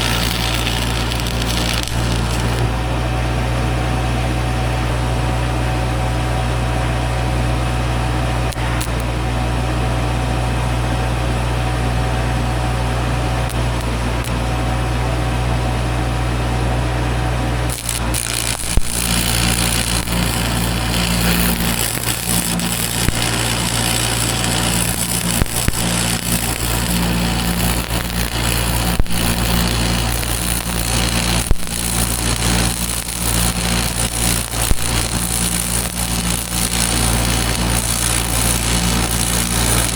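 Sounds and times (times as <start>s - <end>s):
harsh crackling hiss: 0.0s - 2.7s, 17.7s - 39.9s
sharp clicks: 0.0s - 2.7s, 17.7s - 39.9s
engine running steadily: 0.0s - 39.9s.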